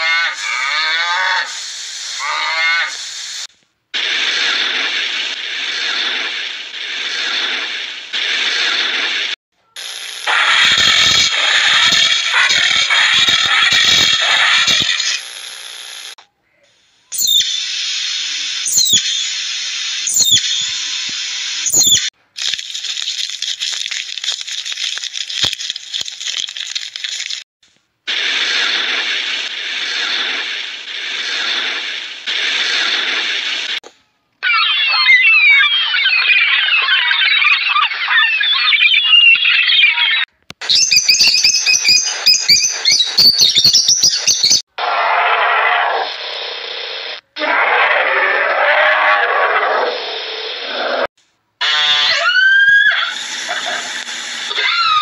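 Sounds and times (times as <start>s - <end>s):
squirrel chirping: 17.2s - 17.6s, 18.7s - 19.3s, 20.1s - 20.8s, 21.7s - 22.0s, 40.6s - 44.6s.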